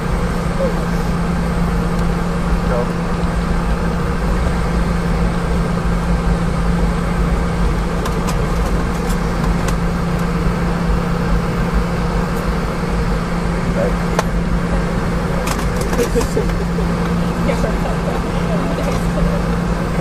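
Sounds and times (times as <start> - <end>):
aircraft cabin drone: 0.0 - 20.0.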